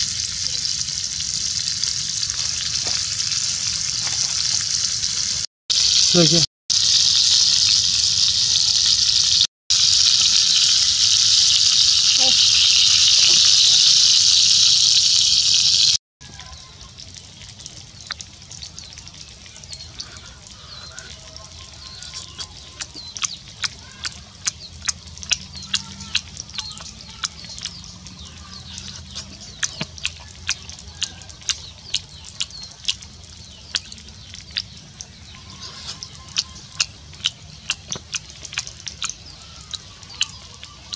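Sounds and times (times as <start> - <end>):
wet chewing and lip smacking: 17.6 - 40.9.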